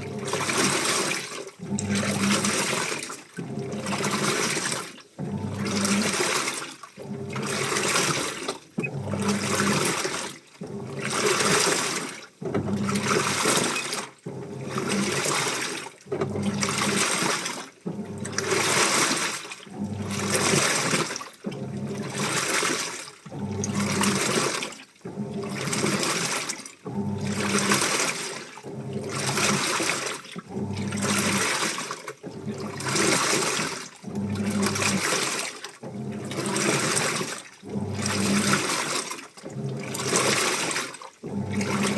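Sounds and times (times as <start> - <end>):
washing machine sloshing: 0.0 - 41.9
low motor hum: 8.7 - 9.8.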